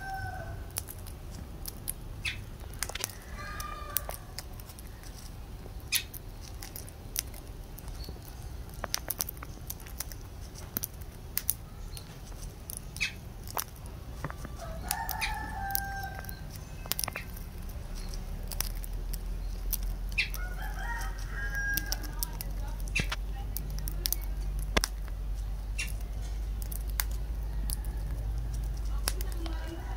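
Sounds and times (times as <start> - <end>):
bird chirps: 2.2 - 2.5, 11.6 - 13.3, 14.2 - 20.6
bird clicks and taps: 5.9 - 12.1.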